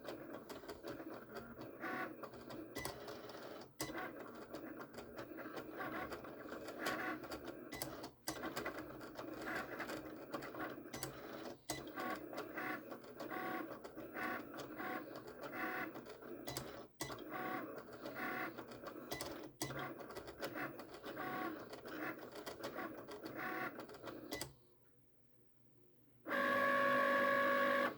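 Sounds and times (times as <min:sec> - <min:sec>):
cutting machine motors whirring: 0:26.3 - 0:27.9.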